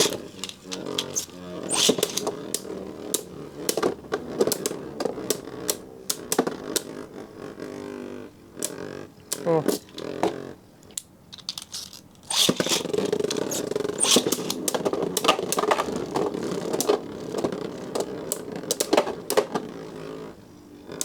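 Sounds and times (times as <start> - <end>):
clicks: 0.0 - 7.0, 8.6 - 20.0
tops clacking together: 0.0 - 7.0, 8.6 - 20.0
spinning tops whirring: 0.0 - 21.0.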